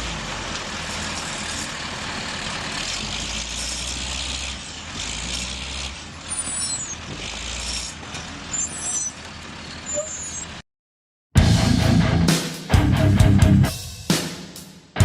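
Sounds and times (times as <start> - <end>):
heavy machine engine rumbling: 0.0 - 10.6
brief high-pitched squeals: 6.3 - 7.0, 7.6 - 10.6.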